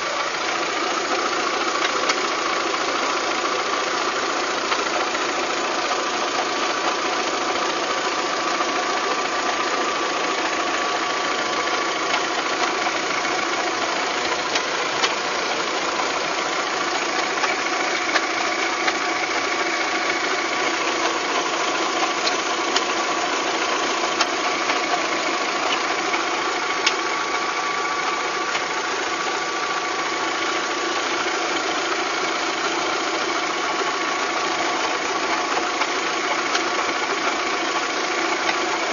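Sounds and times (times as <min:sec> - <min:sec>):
engine running with whine: 0:00.0 - 0:38.9
sharp engine clicks: 0:01.1 - 0:02.5, 0:11.6 - 0:13.0, 0:13.8 - 0:15.8, 0:16.8 - 0:19.7, 0:21.8 - 0:27.2, 0:28.4 - 0:28.8, 0:34.6 - 0:38.9.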